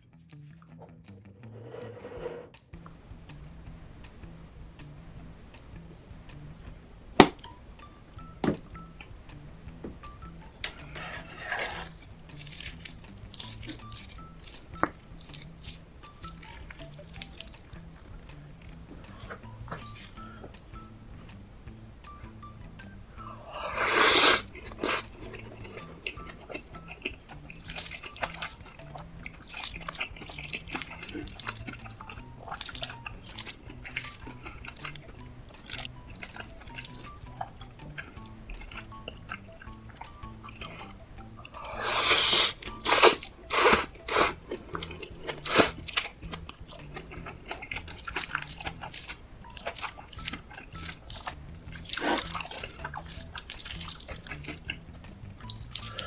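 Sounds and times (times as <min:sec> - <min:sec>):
soft background music: 0:00.0 - 0:56.0
utensil clicks and scrapes: 0:10.6 - 0:15.8.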